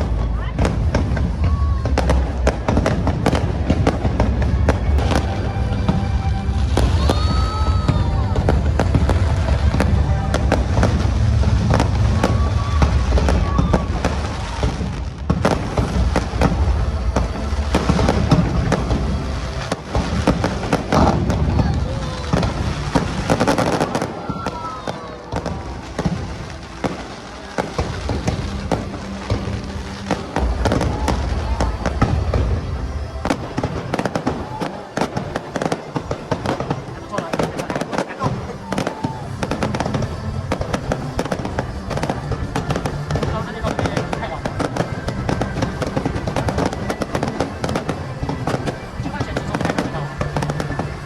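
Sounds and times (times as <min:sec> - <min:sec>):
low rumble: 0:00.0 - 0:23.3
music playing: 0:00.0 - 0:51.0.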